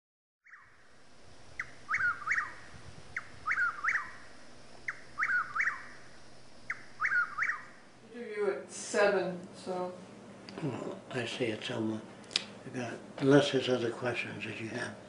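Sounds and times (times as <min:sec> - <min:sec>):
songbird singing: 0:00.4 - 0:08.0
faint low hum: 0:00.5 - 0:15.0.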